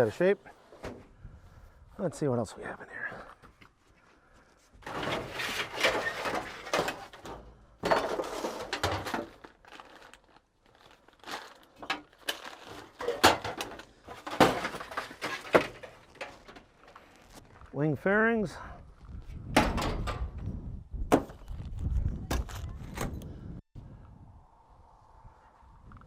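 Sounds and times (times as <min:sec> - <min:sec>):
rustling and scraping of metal parts: 0:03.4 - 0:17.7.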